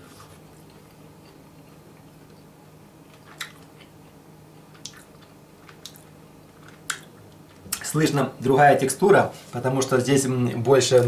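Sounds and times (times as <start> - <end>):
steady low hum: 0.0 - 11.0
person chewing: 0.2 - 7.8.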